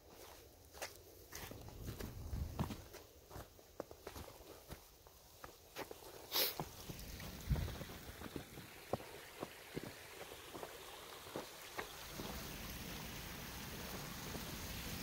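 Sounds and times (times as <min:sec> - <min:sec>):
footsteps crunching on snow: 0:00.0 - 0:12.4
water flowing through rocks: 0:01.5 - 0:02.9, 0:05.6 - 0:15.0.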